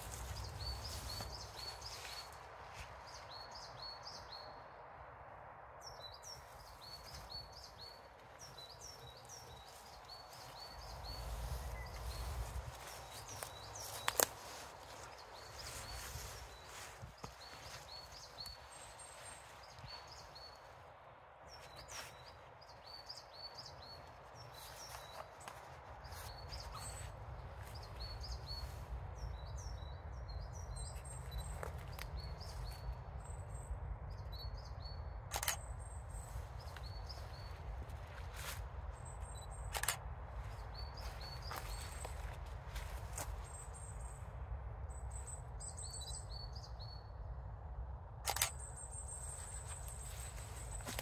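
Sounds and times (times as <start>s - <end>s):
small birds chirping: 0.0s - 4.6s, 5.8s - 20.8s, 21.5s - 44.2s, 48.3s - 51.0s
steady outdoor hiss: 0.0s - 51.0s
sharp clicks: 48.2s - 48.6s.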